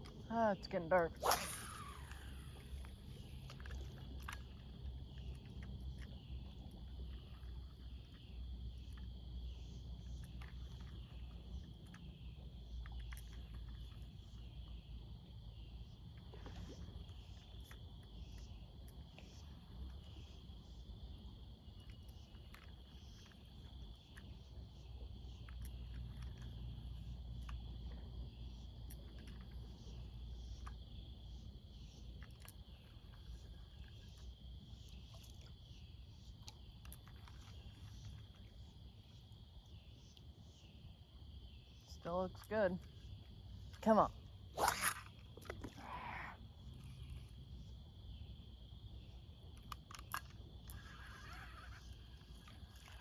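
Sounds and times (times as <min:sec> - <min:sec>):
insects trilling: 0:00.0 - 0:53.0
small clicks: 0:49.5 - 0:53.0.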